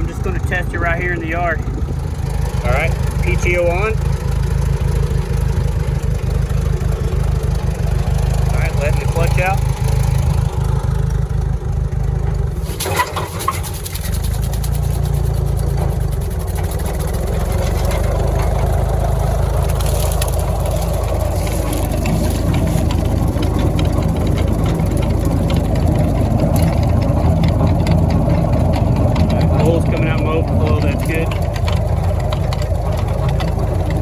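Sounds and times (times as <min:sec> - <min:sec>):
tractor engine running: 0:00.0 - 0:34.0
rotary cutter spinning: 0:12.6 - 0:32.8.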